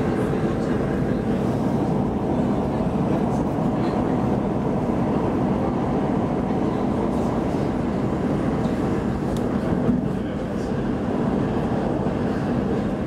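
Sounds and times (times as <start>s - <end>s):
train wheels rumbling inside carriage: 0.0s - 13.0s.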